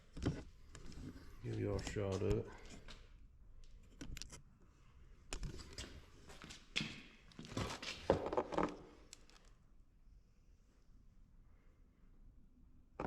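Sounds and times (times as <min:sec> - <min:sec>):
clicks and knocks of handling: 0:03.6 - 0:04.4.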